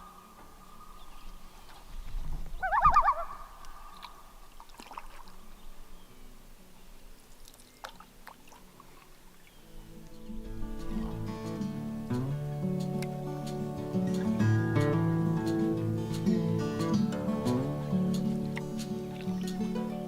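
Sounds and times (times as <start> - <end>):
loons calling: 0.0 - 7.8, 8.9 - 20.0
acoustic guitar music: 8.0 - 20.0.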